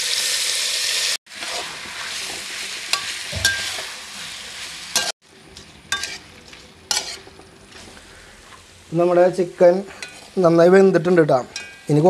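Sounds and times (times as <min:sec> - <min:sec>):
chicken sizzling in hot oil: 0:00.0 - 0:11.0
metal spoon clinking against pot: 0:05.0 - 0:06.2, 0:11.5 - 0:11.9.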